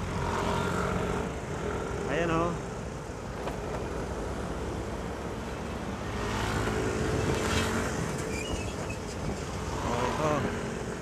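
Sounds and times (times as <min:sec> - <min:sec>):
traffic: 0:00.0 - 0:11.0
wind noise: 0:06.8 - 0:10.7.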